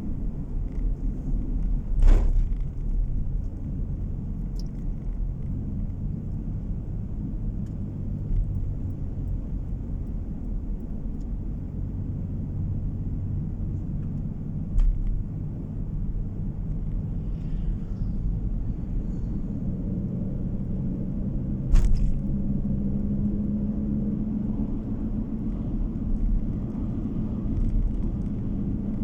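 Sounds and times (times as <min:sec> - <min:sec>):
car interior road rumble: 0:00.0 - 0:29.0
brief knock: 0:02.0 - 0:02.6, 0:21.7 - 0:22.2.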